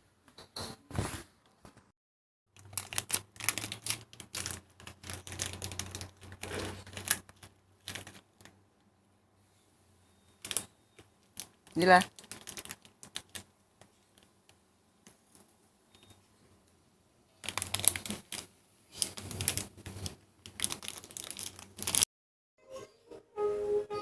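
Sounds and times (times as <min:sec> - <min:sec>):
music: 0:22.6 - 0:24.0.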